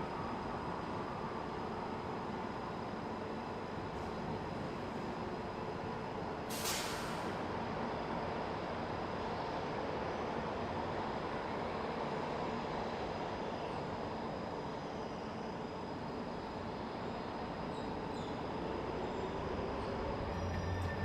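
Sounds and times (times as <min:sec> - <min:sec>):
industrial machinery rumble and hiss: 0:00.0 - 0:21.0
faint high whine: 0:13.4 - 0:21.0.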